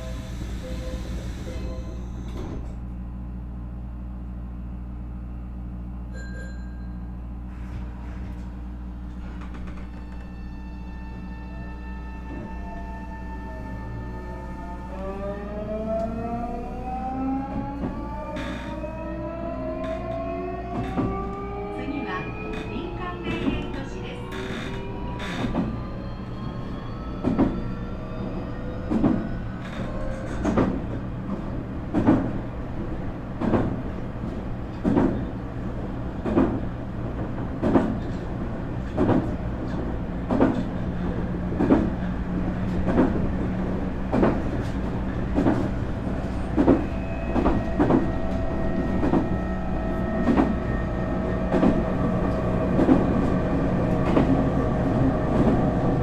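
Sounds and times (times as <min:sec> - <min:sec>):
electric train motor whine: 0:09.2 - 0:22.6, 0:43.4 - 0:56.0.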